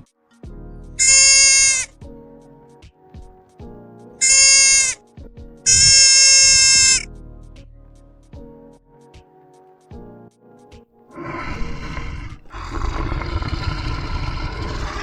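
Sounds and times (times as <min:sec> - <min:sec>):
light background music: 0:00.0 - 0:15.0
animal bleats: 0:01.0 - 0:01.9, 0:04.2 - 0:05.0, 0:05.7 - 0:07.0.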